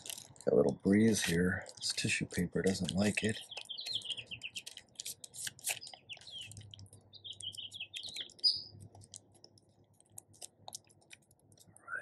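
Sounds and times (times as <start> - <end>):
tissue paper crinkling: 0.0 - 7.0
small birds chirping: 0.4 - 12.0.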